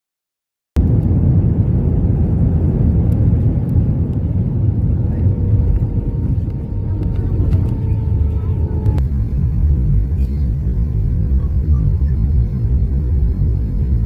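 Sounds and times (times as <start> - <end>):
airliner cabin rumble: 0.8 - 14.0
faint steady whine: 4.0 - 14.0.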